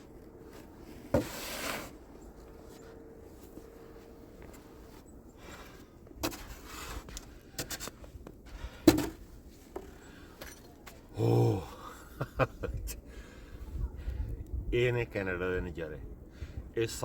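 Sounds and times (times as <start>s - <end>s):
snow shovel scraping snow: 0.5s - 2.0s, 4.7s - 8.0s
person grunting: 11.1s - 12.0s.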